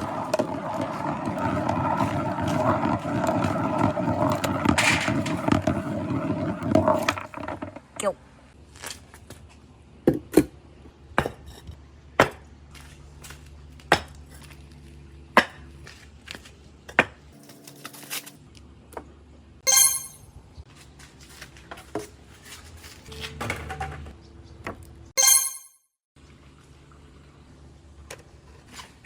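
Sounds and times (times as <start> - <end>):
marbles clacking on track: 0.0 - 7.8
marbles rolling on wooden track: 0.0 - 8.1
bright ringing: 19.7 - 20.2, 25.2 - 25.8.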